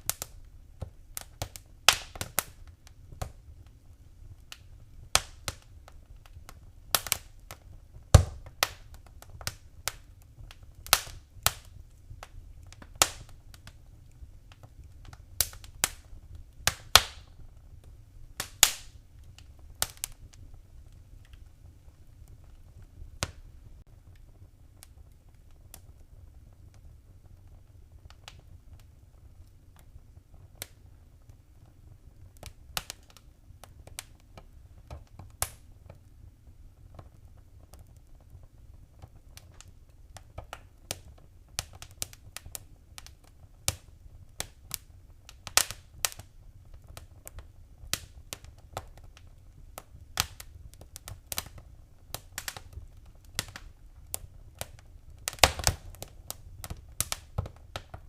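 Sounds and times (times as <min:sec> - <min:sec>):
flames rumbling: 0:00.0 - 0:58.0
wood fire crackling: 0:00.0 - 0:58.0.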